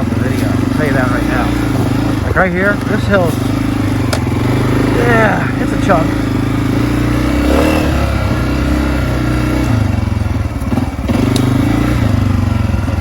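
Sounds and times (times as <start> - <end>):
dirt bike engine under load: 0.0 - 13.0
sharp click: 11.3 - 11.5.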